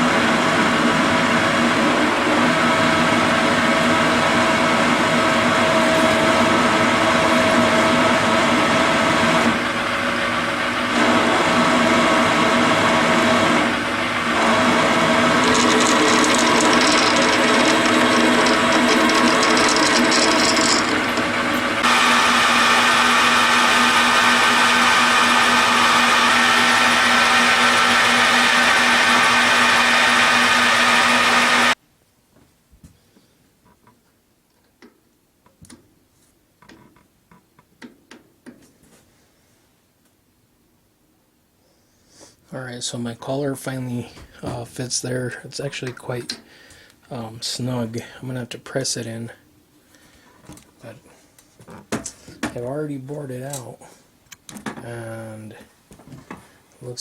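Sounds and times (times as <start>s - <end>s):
metal lathe motor whine: 0.3s - 31.8s
small metal parts clicking: 15.4s - 21.6s.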